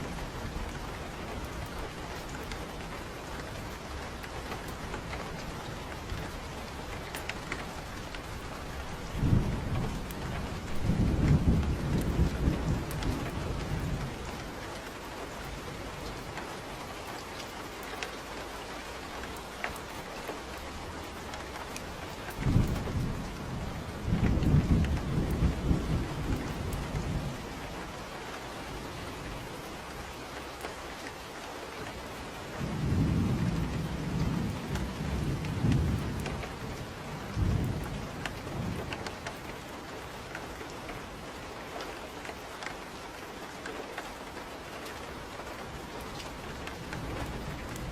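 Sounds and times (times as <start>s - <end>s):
steady rain falling: 0.0s - 47.9s
thunder rolling: 7.9s - 14.5s, 22.4s - 27.8s, 32.6s - 39.2s.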